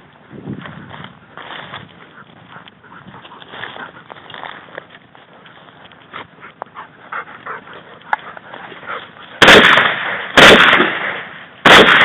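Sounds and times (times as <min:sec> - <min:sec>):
shotgun shots: 0:09.4 - 0:12.0.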